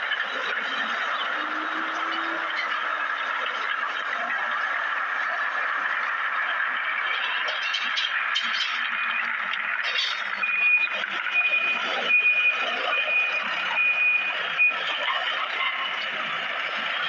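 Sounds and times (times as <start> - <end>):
machinery noise: 0.0 - 17.0
reversing alarm beeping: 8.8 - 9.5, 10.2 - 16.2.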